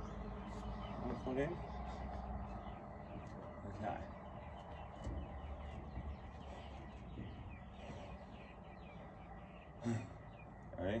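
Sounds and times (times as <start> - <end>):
birds chirping: 0.0 - 11.0
faint outdoor hum: 0.0 - 11.0
soft low knocks: 2.5 - 8.6.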